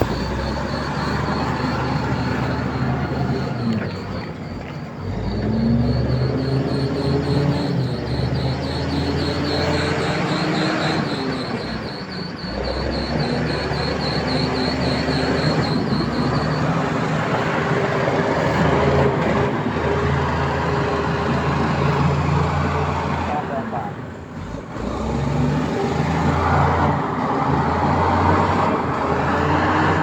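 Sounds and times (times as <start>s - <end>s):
high rapid chirping: 0.0s - 4.2s, 5.5s - 17.0s
diesel engine droning: 0.0s - 30.0s.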